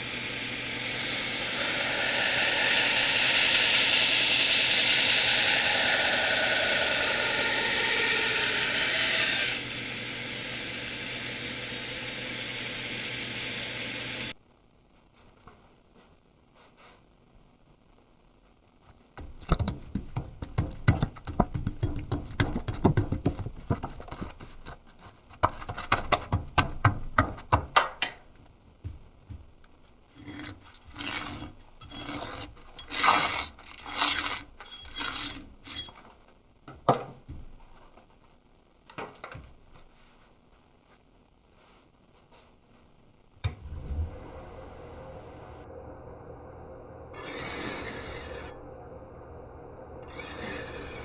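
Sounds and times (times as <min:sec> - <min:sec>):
hand tool scraping workpiece: 0:30.2 - 0:36.1.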